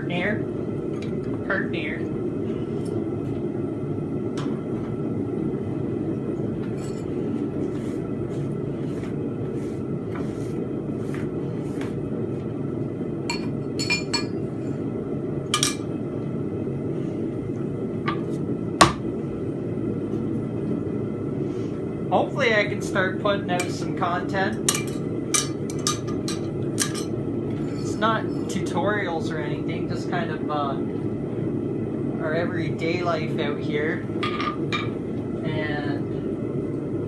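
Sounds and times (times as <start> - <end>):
steady low rumble: 0.0 - 37.0
tools clinking against metal: 24.7 - 27.1.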